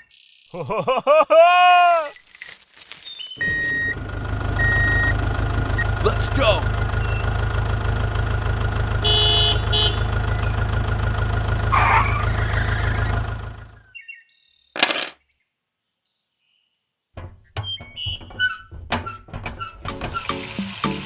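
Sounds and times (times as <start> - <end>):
engine hum: 3.4 - 13.9.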